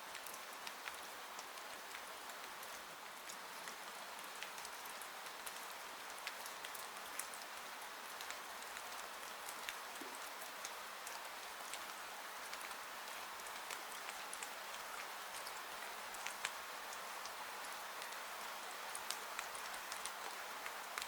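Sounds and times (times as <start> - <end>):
raindrops ticking on a surface: 0.0 - 21.0.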